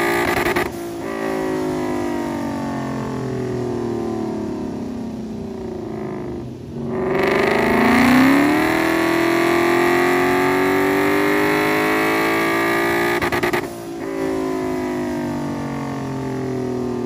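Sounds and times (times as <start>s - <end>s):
engine revving under load: 5.8s - 15.2s.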